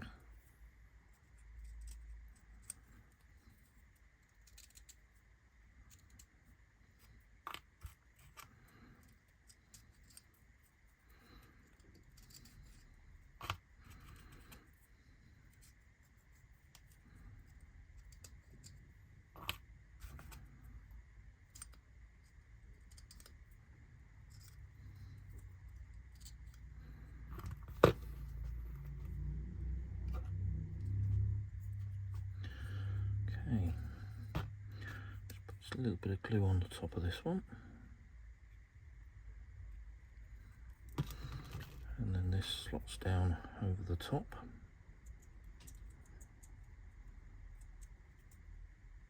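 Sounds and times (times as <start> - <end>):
small sharp clicks and snips: 4.2 - 5.1
faint high whine: 7.9 - 45.2.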